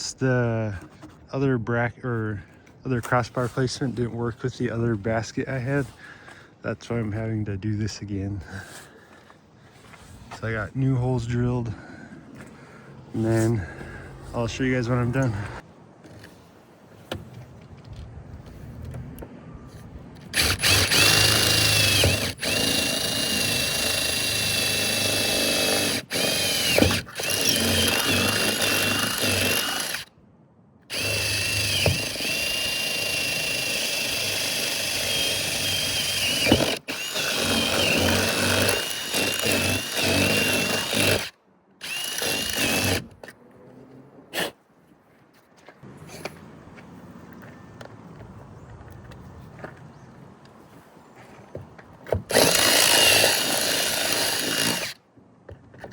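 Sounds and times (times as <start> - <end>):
power drill whining: 20.2 - 30.1, 30.9 - 43.2, 52.1 - 55.0.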